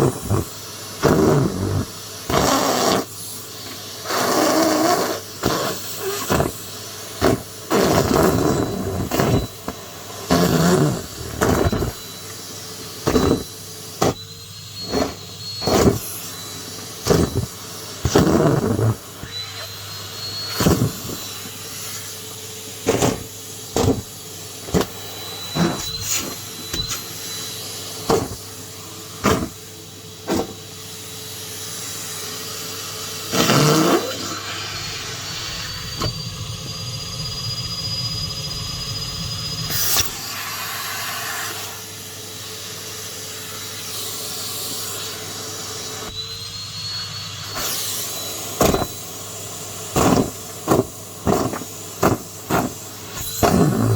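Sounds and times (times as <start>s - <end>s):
vacuum cleaner motor hum: 0.0s - 53.9s
vacuum sucking up debris: 5.4s - 30.7s.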